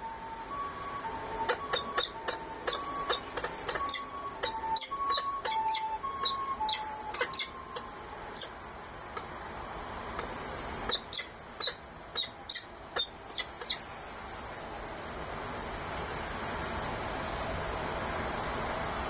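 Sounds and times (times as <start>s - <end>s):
nestling birds chirping: 1.5s - 8.6s, 10.9s - 13.9s.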